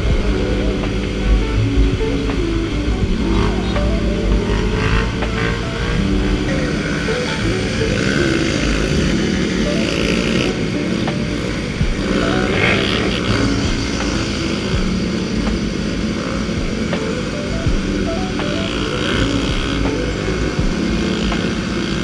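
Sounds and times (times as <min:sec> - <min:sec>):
wind noise: 0:00.0 - 0:09.9
motorcycle engine running: 0:00.0 - 0:22.0.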